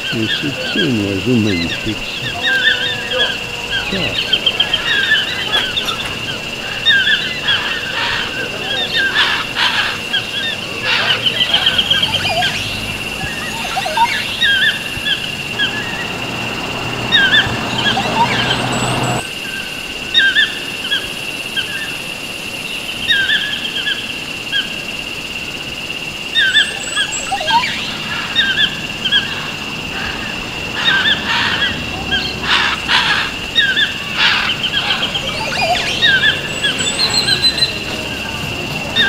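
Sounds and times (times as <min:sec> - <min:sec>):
harsh bird calls: 0:00.0 - 0:22.0, 0:26.3 - 0:39.0
birds chirping: 0:00.0 - 0:24.9, 0:25.5 - 0:39.0
steady high tone: 0:11.4 - 0:19.2, 0:34.8 - 0:39.0.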